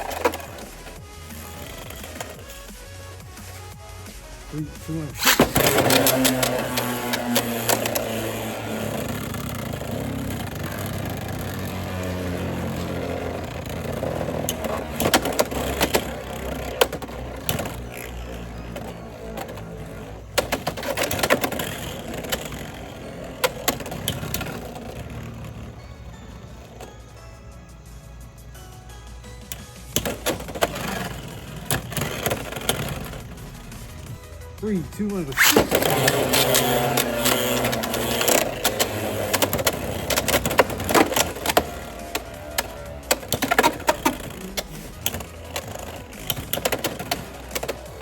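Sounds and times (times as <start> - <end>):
spinning tops whirring: 0.0 - 48.0
spinning tops clacking together: 4.8 - 25.7, 35.2 - 48.0.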